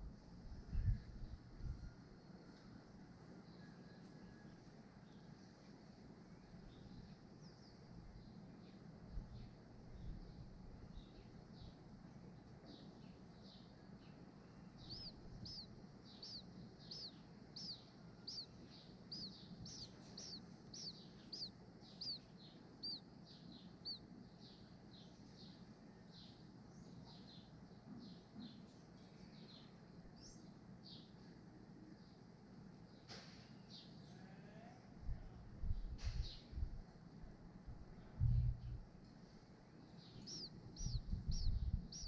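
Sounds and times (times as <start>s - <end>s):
small bird chirping: 6.4s - 31.2s, 35.6s - 36.8s, 37.9s - 42.0s.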